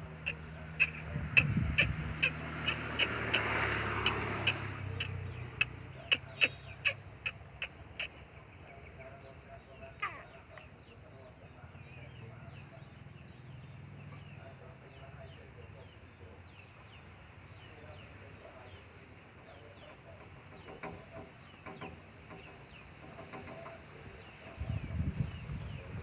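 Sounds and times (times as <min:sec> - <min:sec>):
small birds chirping: 0:00.0 - 0:26.0
dove cooing softly: 0:10.0 - 0:10.7.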